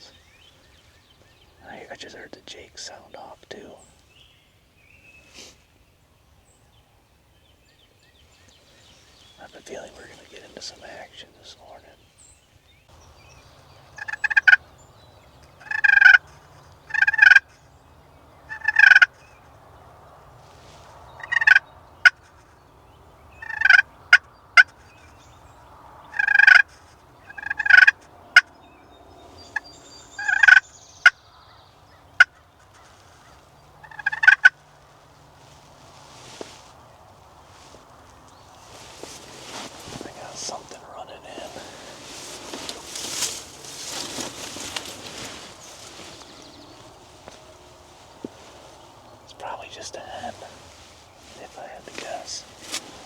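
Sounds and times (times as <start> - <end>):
turkeys gobbling: 13.8 - 14.7, 15.5 - 17.5, 18.5 - 19.2, 21.2 - 22.2, 23.4 - 24.7, 26.1 - 28.5, 30.2 - 31.2, 32.0 - 53.0.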